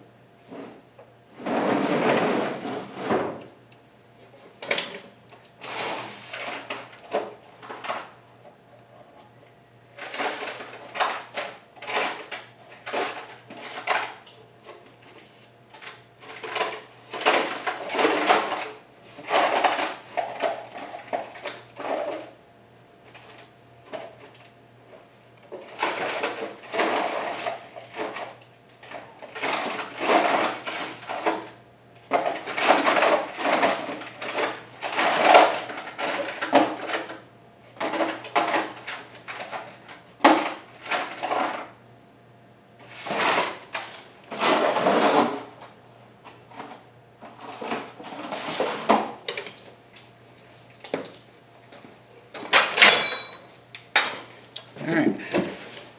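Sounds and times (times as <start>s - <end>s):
metal hand tools clattering: 52.7s - 53.5s.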